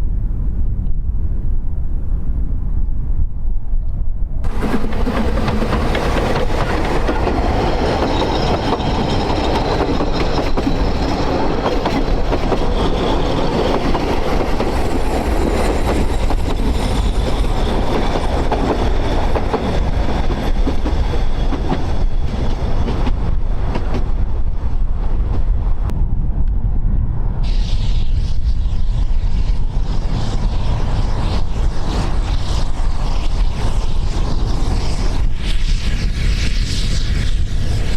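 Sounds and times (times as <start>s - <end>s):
train wheels rumbling on rail: 4.4s - 26.6s, 27.4s - 37.9s
faint wheel squeal: 6.4s - 13.9s.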